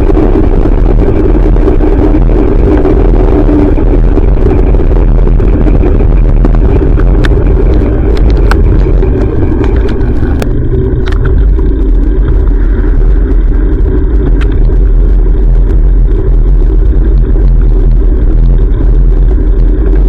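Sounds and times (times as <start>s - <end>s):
road and traffic rumble: 0.0s - 20.0s.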